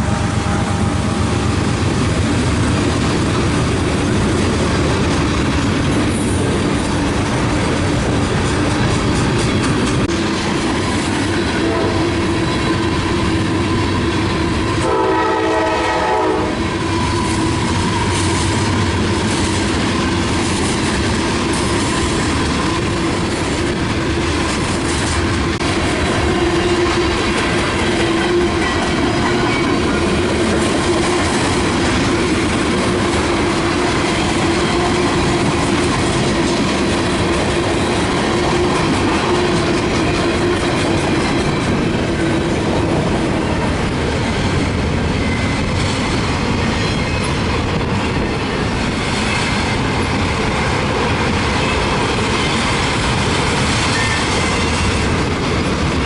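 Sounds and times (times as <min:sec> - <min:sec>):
train wheel clatter: 0:00.0 - 0:56.0
locomotive horn blast: 0:11.5 - 0:12.3, 0:14.8 - 0:16.7.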